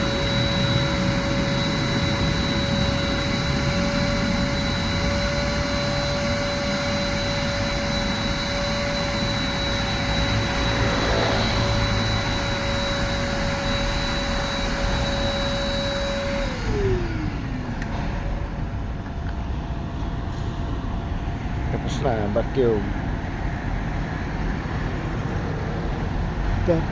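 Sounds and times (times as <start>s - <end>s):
vacuum motor winding down: 0.0s - 19.4s
vacuum cleaner running: 0.0s - 19.8s.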